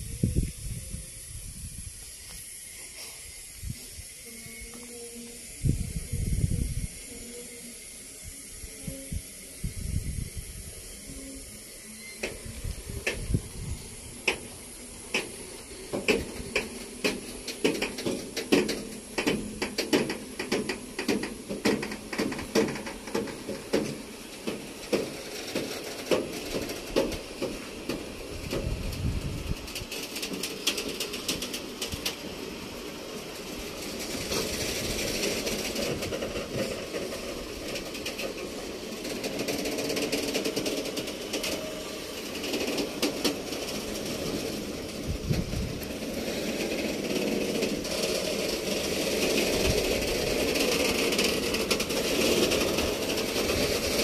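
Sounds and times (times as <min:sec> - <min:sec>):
train rolling rumble and hiss: 0:00.0 - 0:54.0
train wheels clacking over rail joints: 0:12.0 - 0:54.0.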